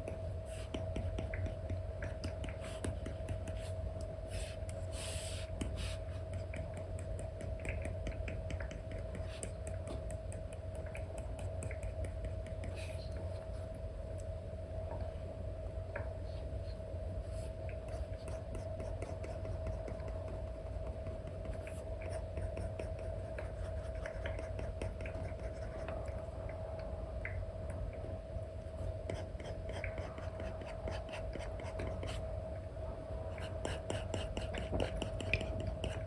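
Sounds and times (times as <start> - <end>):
stylus tapping and scratching: 0.0 - 3.8, 5.5 - 13.2, 17.7 - 26.2, 29.0 - 32.2, 33.4 - 36.0
steady hum: 0.0 - 36.0.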